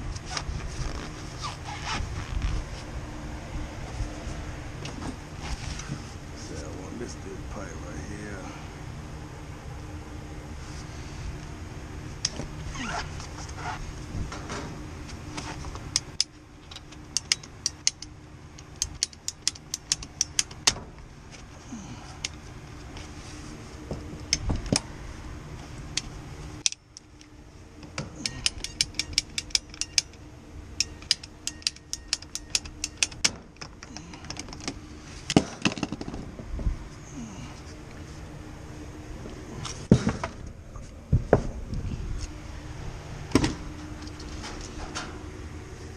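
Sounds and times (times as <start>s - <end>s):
low hum: 0.0s - 45.9s
tubing cutter metallic clicks: 15.9s - 20.8s, 27.9s - 30.2s, 30.8s - 33.7s.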